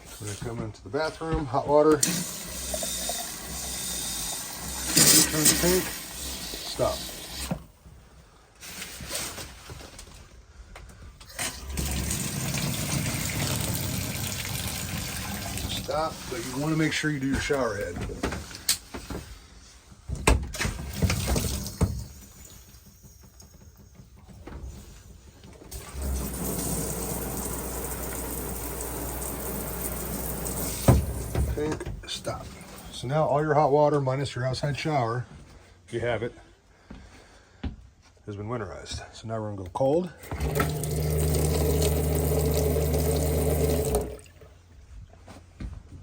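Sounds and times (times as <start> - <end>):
water running from a tap: 2.0 - 7.5, 11.4 - 16.6, 25.7 - 31.5, 40.3 - 44.3
water pump running: 2.0 - 7.6, 11.3 - 17.6, 25.7 - 31.7, 40.2 - 44.5.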